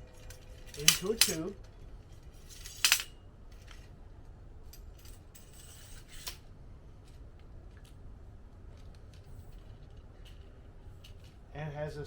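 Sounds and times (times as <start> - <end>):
metal rods clacking together: 0.0 - 1.6, 2.5 - 3.1
metal sliding scrape: 2.4 - 3.1, 5.4 - 6.4.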